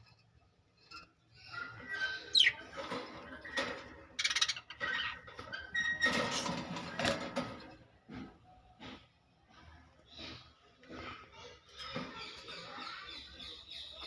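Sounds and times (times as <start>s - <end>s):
lovebirds chattering: 1.0s - 5.3s, 10.0s - 14.0s.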